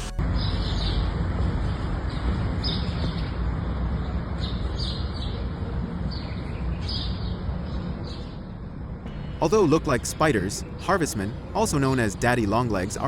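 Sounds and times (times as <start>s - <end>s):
low background rumble: 0.2s - 13.0s
small birds chirping: 0.3s - 8.6s.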